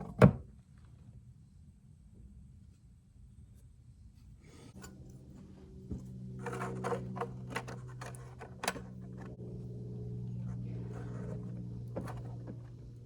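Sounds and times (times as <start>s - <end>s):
steady low hum: 3.9s - 13.0s.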